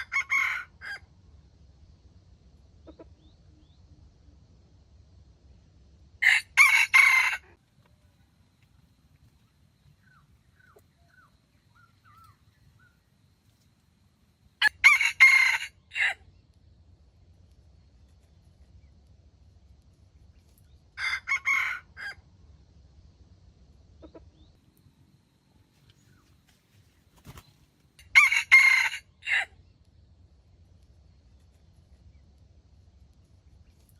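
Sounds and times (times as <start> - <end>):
rooster crowing: 0.0 - 1.0, 6.2 - 7.6, 14.6 - 16.2, 21.0 - 22.2, 28.0 - 29.5.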